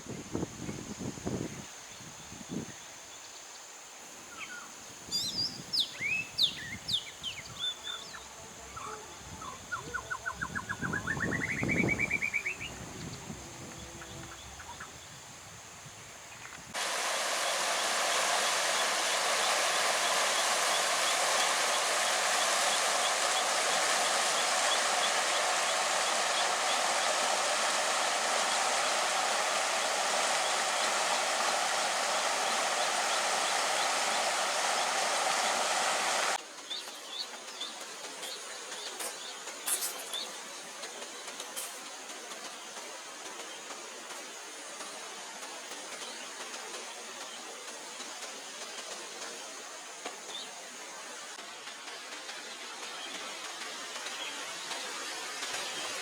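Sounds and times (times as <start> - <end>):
wind buffeting microphone: 9.2 - 16.8
birds chirping: 16.4 - 41.6
flowing water rushing: 16.7 - 56.0.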